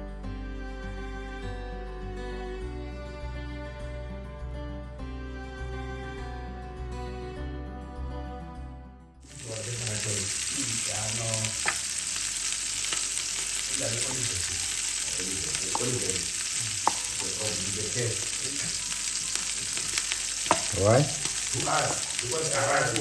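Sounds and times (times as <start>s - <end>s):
background music: 0.0s - 18.4s
food sizzling in frying: 9.2s - 23.0s.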